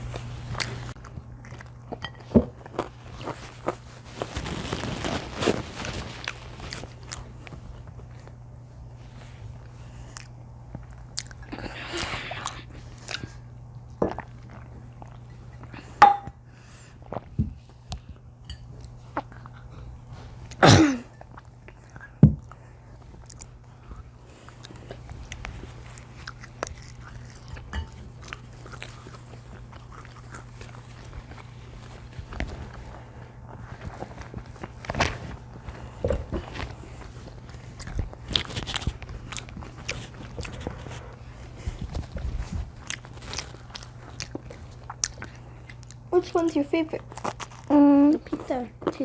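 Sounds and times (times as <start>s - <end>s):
close chewing and biting food: 0.0s - 8.5s, 9.2s - 16.0s, 16.8s - 20.6s, 21.2s - 49.0s
steady low hum: 0.0s - 49.0s.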